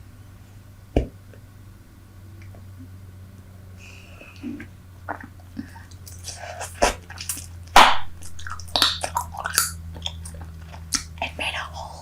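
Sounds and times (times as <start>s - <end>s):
wet gum chewing and smacking: 4.4s - 11.7s
loud sharp smack: 7.8s - 8.2s.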